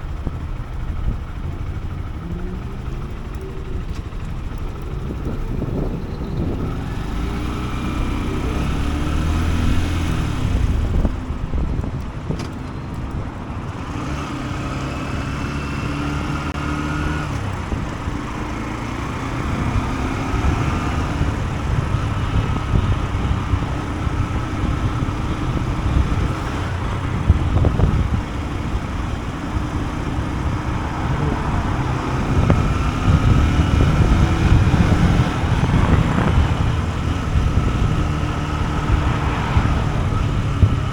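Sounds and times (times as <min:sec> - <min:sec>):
motorcycle engine accelerating: 0:00.0 - 0:40.9
wind and road noise: 0:00.0 - 0:40.9.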